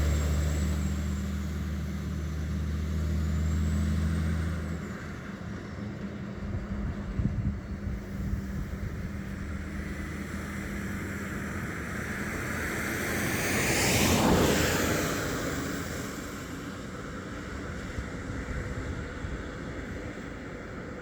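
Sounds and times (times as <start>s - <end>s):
vehicle passing by: 0.0s - 4.8s, 7.8s - 16.7s
wind-like background noise: 5.1s - 21.0s.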